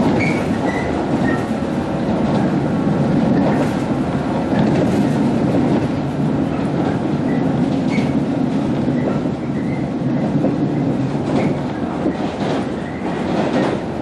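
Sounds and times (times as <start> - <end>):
electric train running rumble: 0.0 - 14.0.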